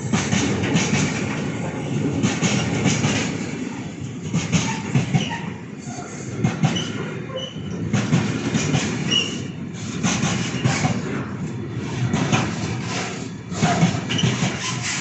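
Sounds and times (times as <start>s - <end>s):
train wheels clattering on rails: 0.0s - 15.0s.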